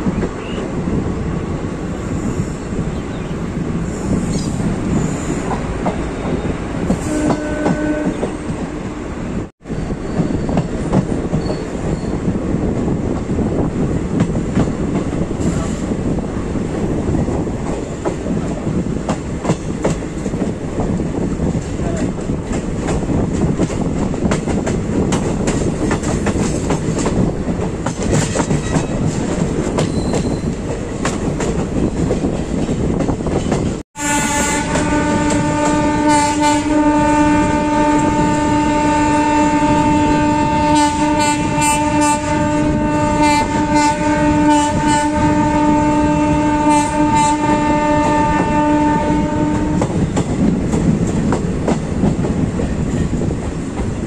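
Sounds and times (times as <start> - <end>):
passenger train running: 0.0 - 54.0
train horn long note: 7.0 - 8.7, 34.0 - 49.9.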